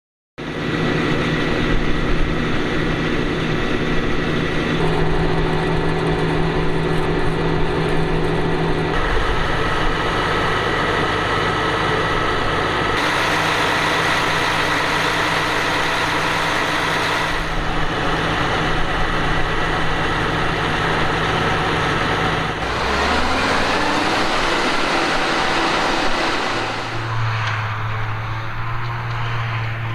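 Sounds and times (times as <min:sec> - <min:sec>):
harvester engine drone with whine: 0:00.4 - 0:29.9.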